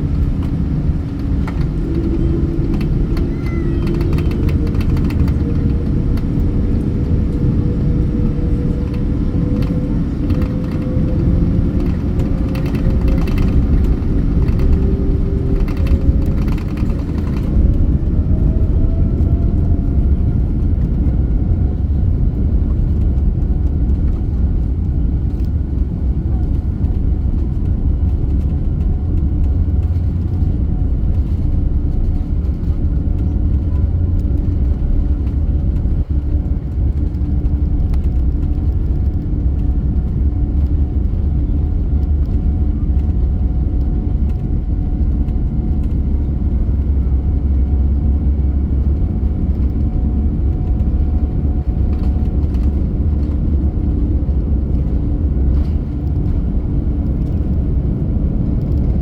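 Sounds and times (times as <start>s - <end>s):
jet engine and airflow rumble: 0.0s - 59.0s.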